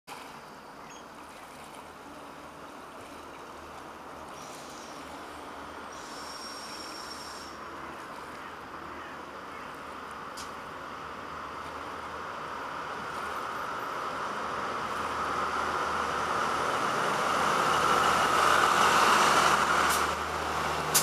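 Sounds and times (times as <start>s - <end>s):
wind: 0.0s - 21.0s
distant train approaching: 2.1s - 21.0s.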